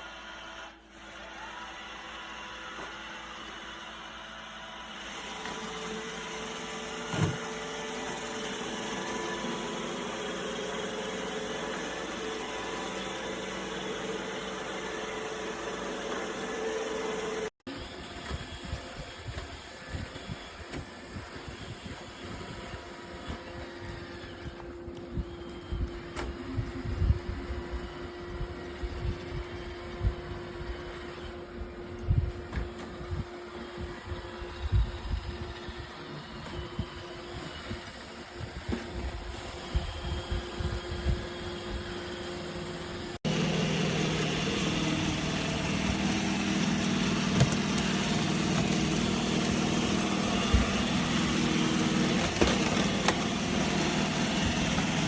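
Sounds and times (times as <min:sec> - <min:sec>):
robot vacuum motor whir: 0:00.0 - 0:55.0.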